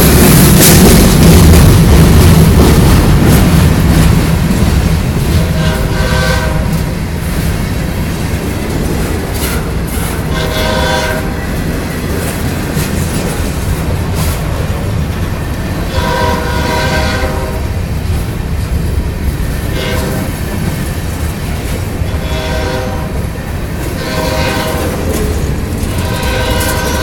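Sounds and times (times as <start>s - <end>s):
train rumbling: 0.0s - 27.0s
locomotive air horn blasts: 5.3s - 6.8s, 10.3s - 11.4s, 15.9s - 17.7s, 19.7s - 20.4s, 22.1s - 23.2s, 24.0s - 25.1s, 25.8s - 27.0s.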